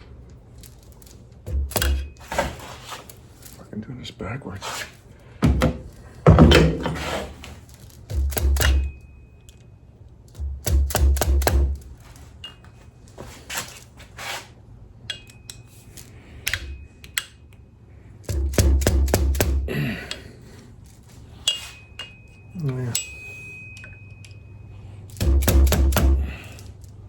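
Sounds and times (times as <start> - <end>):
metal tools clinking and knocking: 0.5 - 3.7, 5.9 - 9.8, 10.4 - 13.9, 15.0 - 17.6, 20.8 - 27.0.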